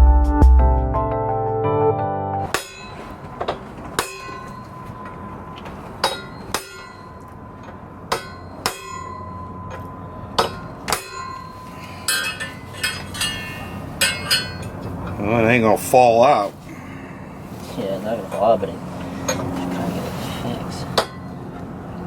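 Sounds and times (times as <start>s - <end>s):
steady background noise: 2.4s - 22.0s
hammer tapping on metal: 2.5s - 5.0s, 6.0s - 13.4s, 14.0s - 14.8s.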